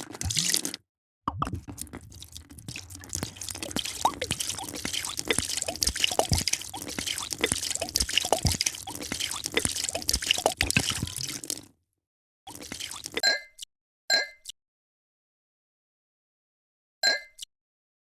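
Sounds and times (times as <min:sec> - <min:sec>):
drink fizzing: 0:00.0 - 0:11.7, 0:12.5 - 0:13.2
liquid dripping plops: 0:00.1 - 0:11.7, 0:12.5 - 0:13.2.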